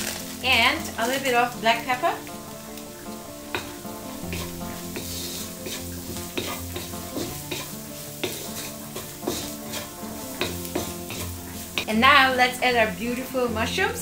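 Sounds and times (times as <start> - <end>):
wooden spatula scraping a pan: 0.0 - 13.1
onions sizzling in a wok: 0.0 - 14.0.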